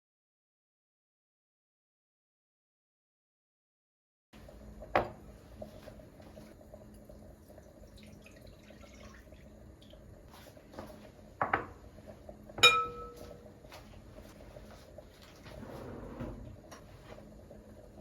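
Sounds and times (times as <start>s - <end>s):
dishes knocking: 12.6s - 13.3s
glassware clinking: 12.6s - 13.4s.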